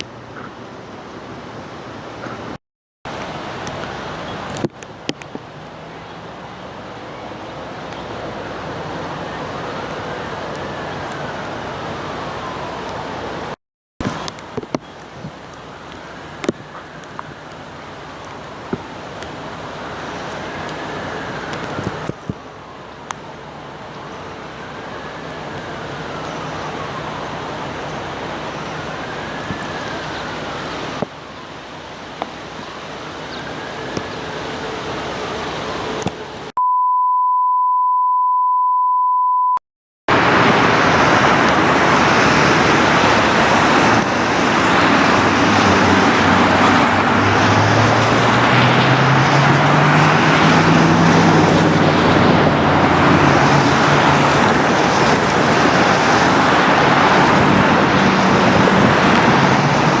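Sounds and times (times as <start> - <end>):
road traffic: 0.0 - 36.6, 40.1 - 60.0
faint siren wail: 6.4 - 13.6, 15.4 - 36.5, 40.1 - 60.0
steady beep: 36.6 - 39.6.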